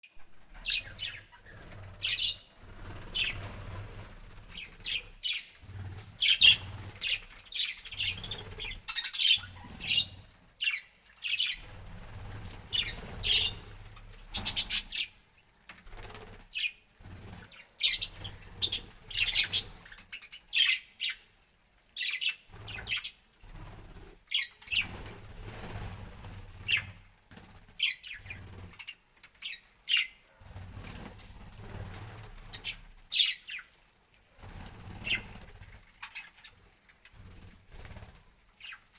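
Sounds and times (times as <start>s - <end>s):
wing flapping: 0.2s - 10.6s, 11.4s - 20.2s, 22.5s - 29.0s, 30.3s - 33.2s, 34.3s - 38.9s
parrots chirping and squawking: 0.4s - 15.2s, 17.4s - 21.2s, 34.7s - 36.5s.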